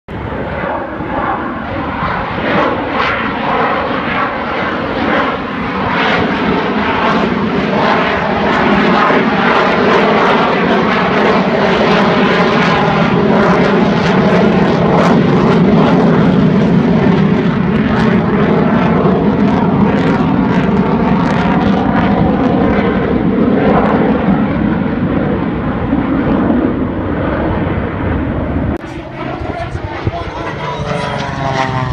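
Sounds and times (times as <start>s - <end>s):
airplane engine running: 0.1s - 31.9s.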